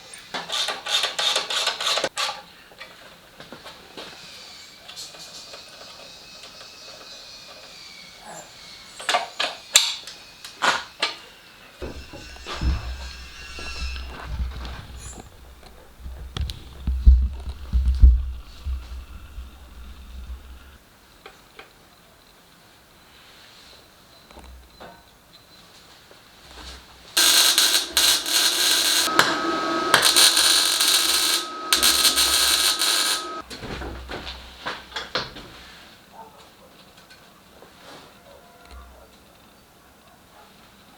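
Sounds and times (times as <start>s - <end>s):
faint high whine: 11.8s - 20.8s, 27.2s - 33.4s.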